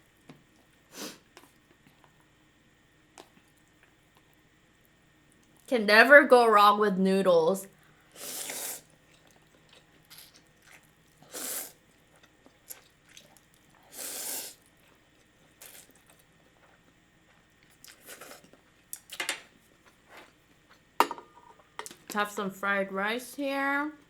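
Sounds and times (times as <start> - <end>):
noodles being slurped: 8.2 - 11.8, 12.7 - 14.7
chewing: 8.4 - 11.3, 11.9 - 13.9, 14.6 - 19.2.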